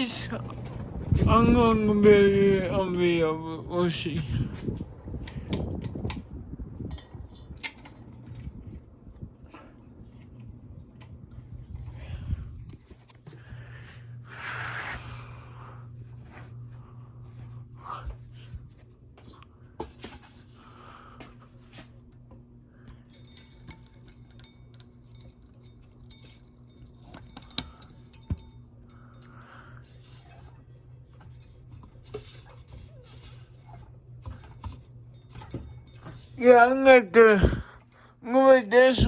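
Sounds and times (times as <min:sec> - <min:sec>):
ceiling fan motor humming: 0:00.0 - 0:39.0
clicks and light clinks: 0:01.4 - 0:13.8, 0:22.0 - 0:38.3.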